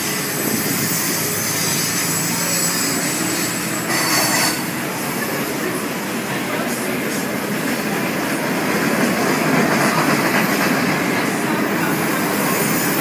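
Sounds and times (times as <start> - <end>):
train wheels squealing: 0.0 - 5.4, 9.8 - 13.0
freight train rumbling: 0.0 - 13.0.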